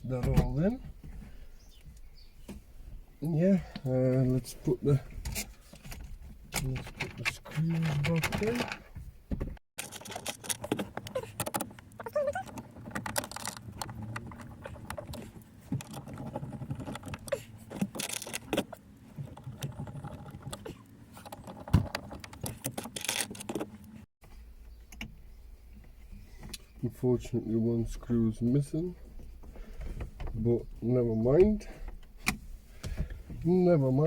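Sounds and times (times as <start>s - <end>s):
metal hardware clicks and rattles: 5.2s - 8.9s.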